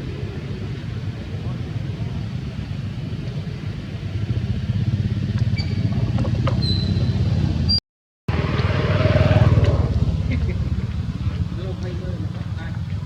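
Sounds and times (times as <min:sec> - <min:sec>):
low engine rumble: 0:00.0 - 0:13.0
short high squeaks: 0:06.6 - 0:07.8.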